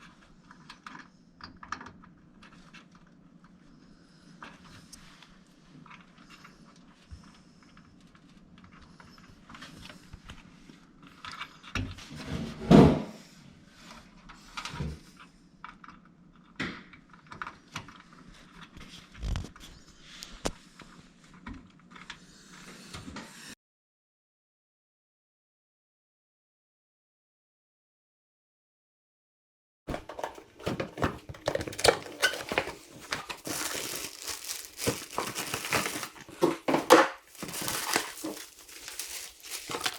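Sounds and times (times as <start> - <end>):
computer parts clicking and rattling: 29.9 - 37.0.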